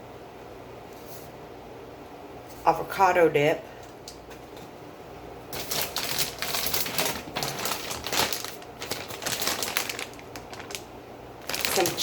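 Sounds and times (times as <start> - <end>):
food containers being handled: 5.6 - 12.0.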